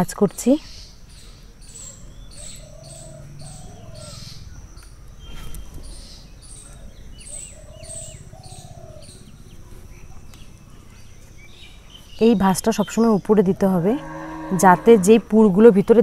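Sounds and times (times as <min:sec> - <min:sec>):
birds chirping: 0:00.2 - 0:16.0
bird cooing: 0:01.9 - 0:04.6, 0:06.6 - 0:11.1.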